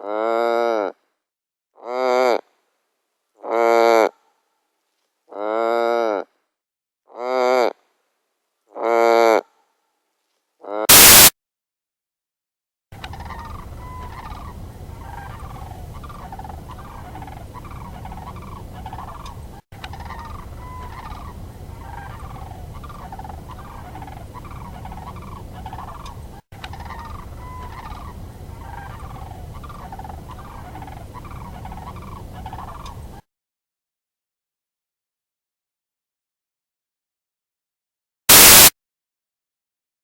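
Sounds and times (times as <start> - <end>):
bird calls: 13.0 - 33.1.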